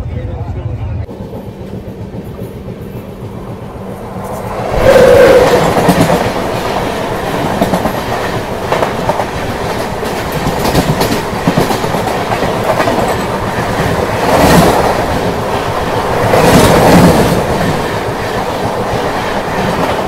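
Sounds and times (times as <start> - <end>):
train wheels clattering over joints: 5.0 - 20.0.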